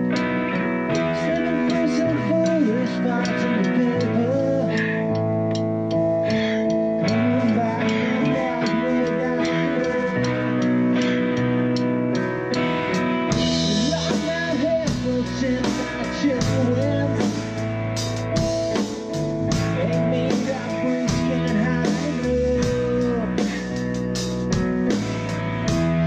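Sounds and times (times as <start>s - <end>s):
bass guitar: 0.0s - 26.0s
drum kit: 0.0s - 26.0s
lead guitar with bent notes: 0.0s - 26.0s.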